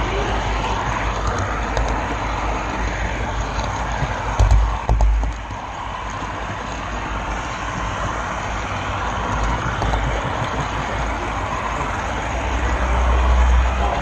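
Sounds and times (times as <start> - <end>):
model train wheels rumbling: 0.0 - 14.0.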